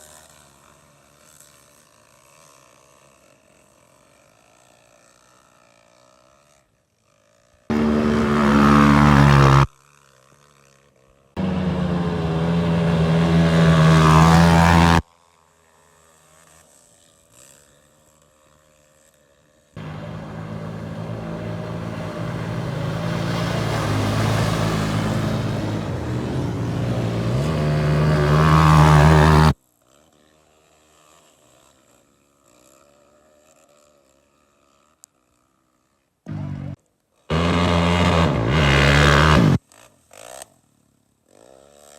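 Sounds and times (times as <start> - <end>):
motorcycle engines revving: 7.7 - 9.7, 11.4 - 15.0, 19.8 - 29.6, 36.3 - 39.6.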